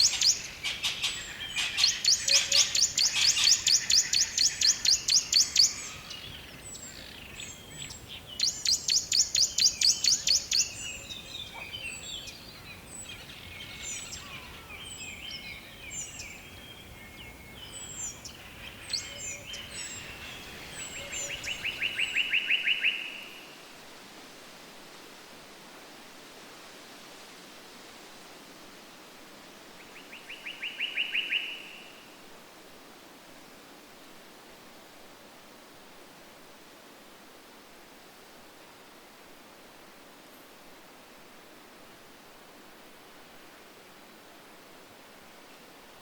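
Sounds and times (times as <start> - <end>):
lower rapid bird trill: 0.0 - 23.4.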